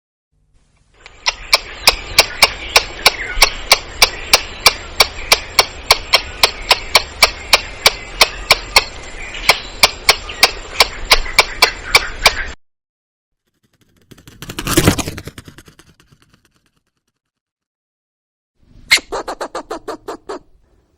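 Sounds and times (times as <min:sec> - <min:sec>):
squirrel alarm calls: 0:01.1 - 0:12.6, 0:18.9 - 0:20.6.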